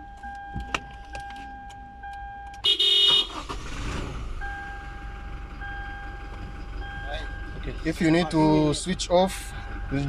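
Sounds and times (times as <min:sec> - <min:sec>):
car engine cranking: 0:00.0 - 0:10.0
car engine running: 0:03.4 - 0:10.0.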